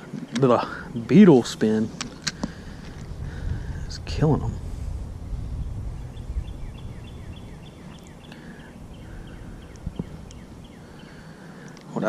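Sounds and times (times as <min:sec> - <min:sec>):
low background rumble: 0:00.7 - 0:11.6
songbird whistling: 0:06.0 - 0:11.8.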